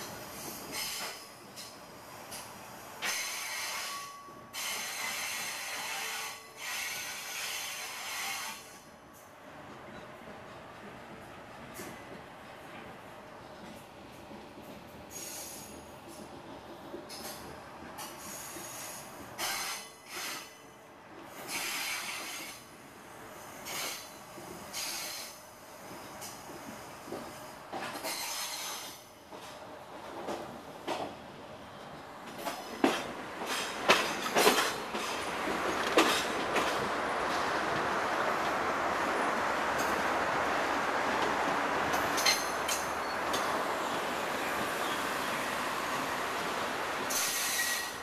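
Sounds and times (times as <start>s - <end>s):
wheels on rail hissing: 2.3s - 8.8s, 15.1s - 15.8s, 18.0s - 20.5s, 21.3s - 22.6s, 23.6s - 25.4s, 27.0s - 29.1s, 32.4s - 48.0s
train rushing rumble: 21.2s - 48.0s.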